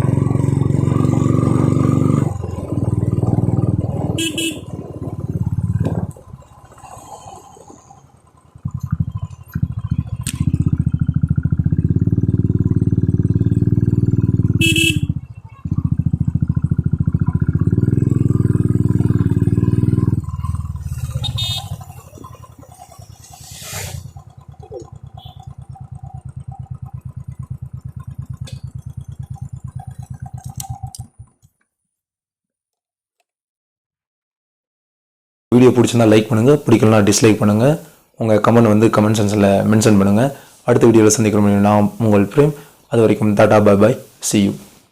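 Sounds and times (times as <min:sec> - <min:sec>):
motorcycle engine running: 0:00.0 - 0:31.6.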